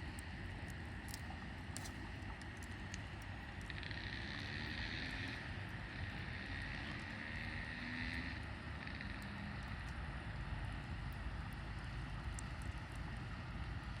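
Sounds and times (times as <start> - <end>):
fire crackling and popping: 10.8 - 13.9.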